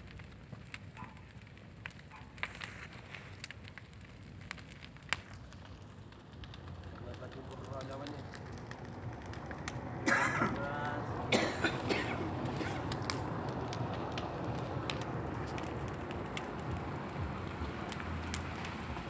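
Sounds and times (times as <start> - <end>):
bonfire burning: 0.0 - 19.0
fire popping: 0.0 - 19.0
person coughing or calling out: 10.1 - 10.6, 11.3 - 12.9.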